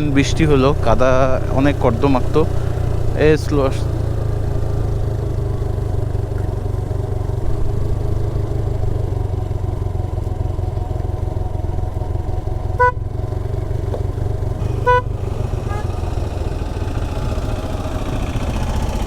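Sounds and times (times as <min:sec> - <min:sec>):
motorcycle engine at low revs: 0:00.0 - 0:19.0
short horn beep: 0:12.8 - 0:13.0, 0:14.6 - 0:16.0.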